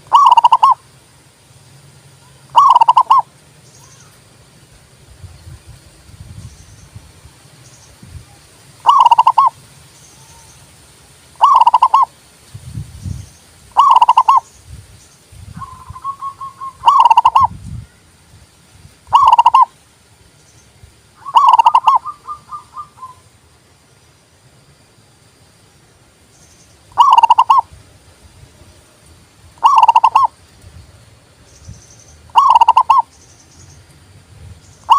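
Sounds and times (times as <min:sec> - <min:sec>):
dove cooing: 0:00.0 - 0:00.8, 0:02.5 - 0:03.3, 0:08.8 - 0:09.5, 0:11.4 - 0:12.1, 0:13.8 - 0:14.4, 0:15.6 - 0:17.6, 0:19.1 - 0:19.7, 0:21.2 - 0:23.3, 0:26.9 - 0:27.7, 0:29.6 - 0:30.4, 0:32.3 - 0:33.1.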